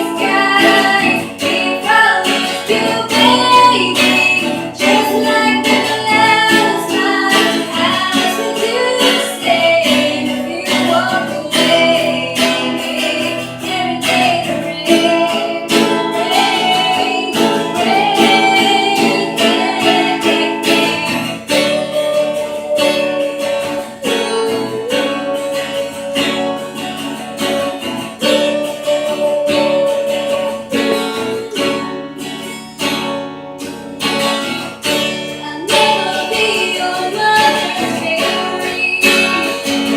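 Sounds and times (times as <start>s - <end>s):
person singing: 0.0s - 33.0s, 35.0s - 39.9s
acoustic guitar strumming: 0.0s - 39.9s.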